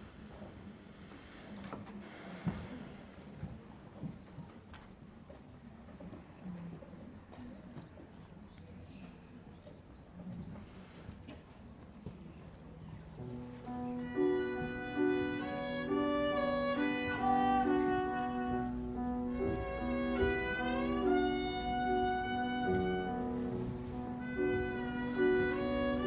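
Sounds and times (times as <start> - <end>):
held chord accompaniment: 13.2 - 26.0
violin melody with vibrato: 13.7 - 26.0.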